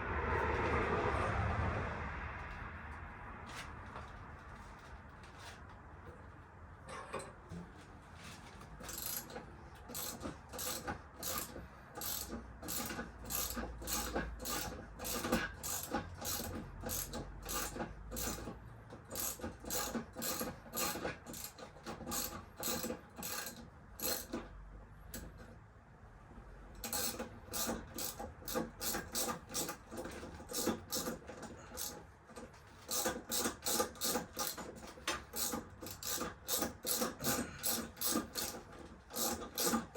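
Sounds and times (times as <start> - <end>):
hand tool back-and-forth strokes: 8.2 - 24.4, 26.8 - 39.9.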